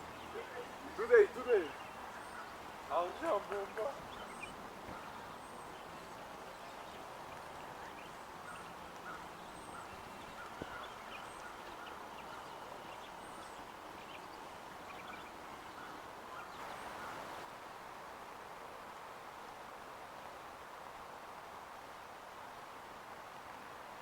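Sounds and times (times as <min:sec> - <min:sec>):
birds chirping: 0:00.0 - 0:17.5
steady background hiss: 0:00.0 - 0:24.0
lower short bird calls: 0:00.1 - 0:06.2, 0:07.7 - 0:17.5.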